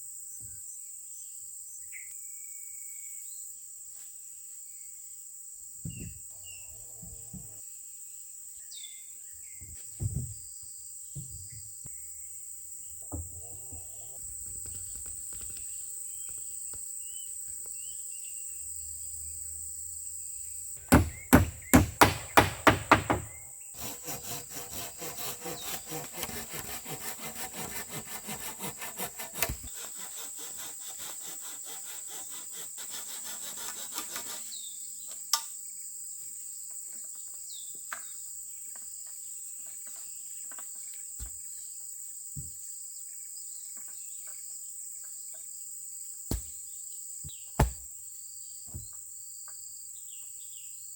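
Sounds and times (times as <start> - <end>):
insects chirring: 11.4 - 23.7
sharp knocks on wood: 20.8 - 23.4, 46.3 - 46.6, 47.3 - 47.9.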